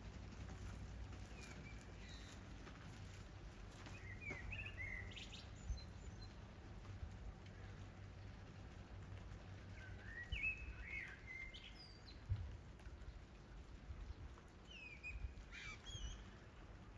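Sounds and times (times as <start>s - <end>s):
low steady rumble: 0.0s - 15.6s
light rain: 0.0s - 16.9s
bird chirping: 3.9s - 6.4s, 9.8s - 12.2s, 14.7s - 16.4s.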